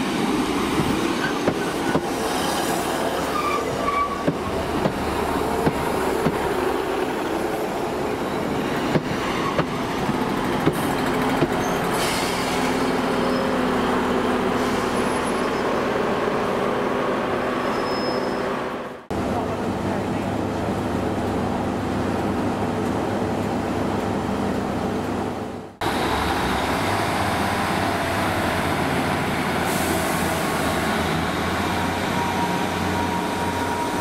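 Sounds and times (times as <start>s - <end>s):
train wheels rumbling on rail: 0.0s - 34.0s
faint held squeal: 17.6s - 18.5s.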